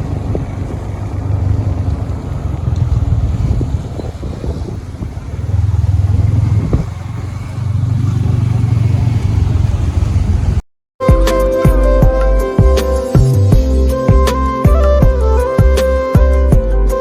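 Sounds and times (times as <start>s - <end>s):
motorcycle engine running: 0.0s - 10.6s
wind noise on microphone: 0.0s - 10.6s
music: 11.0s - 17.0s.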